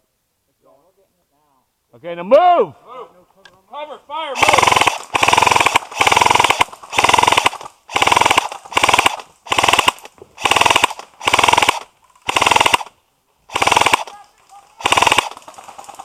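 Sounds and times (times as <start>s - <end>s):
airsoft gun full-auto bursts: 4.4s - 14.2s, 14.8s - 16.0s.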